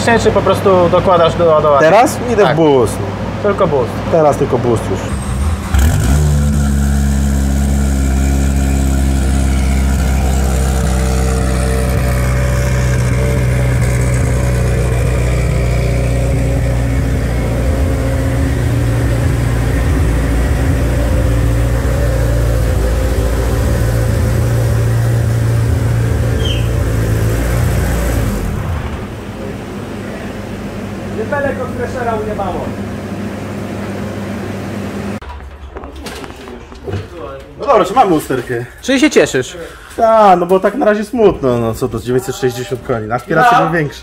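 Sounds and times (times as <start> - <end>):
turbocharged race car engine: 4.4 - 35.2.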